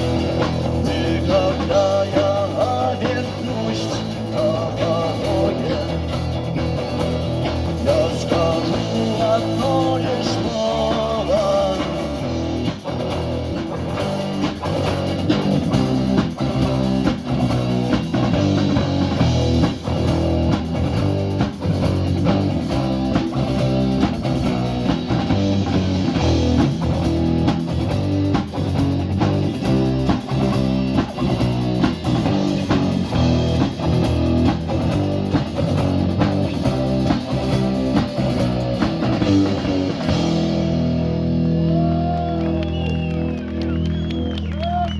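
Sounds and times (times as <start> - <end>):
live rock band playing: 0.0 - 44.9
lead guitar melody: 12.2 - 44.4.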